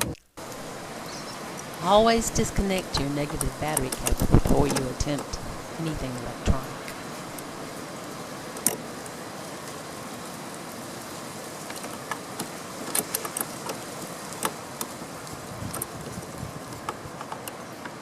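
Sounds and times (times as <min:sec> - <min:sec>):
steady background hiss: 0:00.0 - 0:18.0
light clicks and taps: 0:15.7 - 0:18.0.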